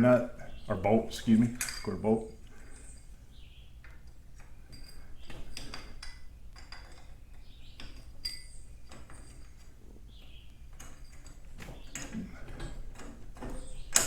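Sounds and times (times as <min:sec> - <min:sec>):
wrench clinking on metal: 0:01.4 - 0:03.1.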